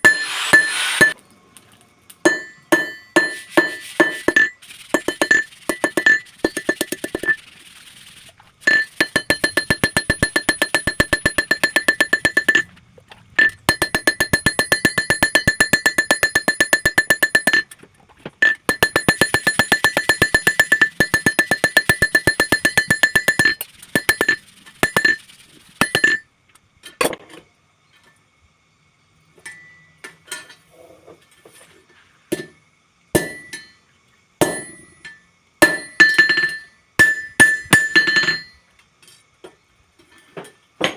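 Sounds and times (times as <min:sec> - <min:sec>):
hammer ringing on steel: 0:02.3 - 0:04.5, 0:08.7 - 0:12.7, 0:13.4 - 0:17.7.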